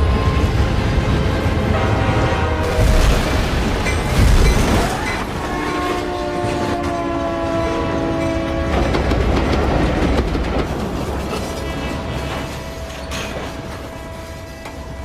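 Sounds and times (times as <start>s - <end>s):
train horn chord: 0.0s - 2.9s, 5.4s - 9.1s, 11.8s - 15.0s
train rumbling past: 0.0s - 15.0s
wheels clacking over rail joints: 3.7s - 15.0s.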